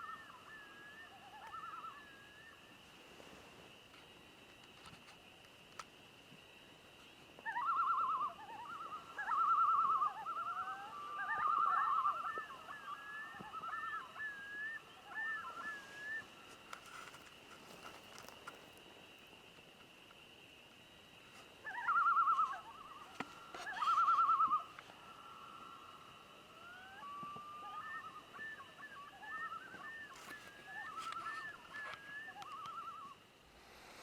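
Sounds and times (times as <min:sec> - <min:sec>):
bird trilling: 0:07.5 - 0:18.4, 0:21.6 - 0:24.8, 0:26.6 - 0:33.2
bird chirping: 0:26.7 - 0:33.2.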